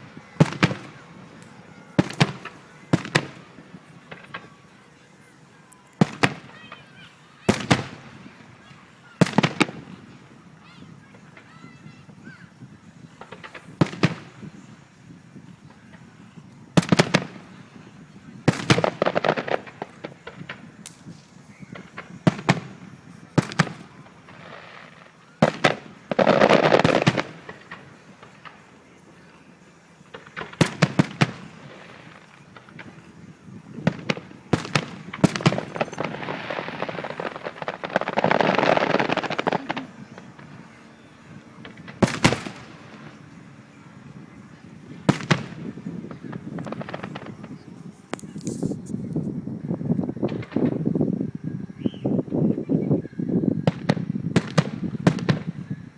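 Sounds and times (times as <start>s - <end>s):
fireworks bangs: 0.0s - 55.9s
fireworks crackling: 0.0s - 55.9s.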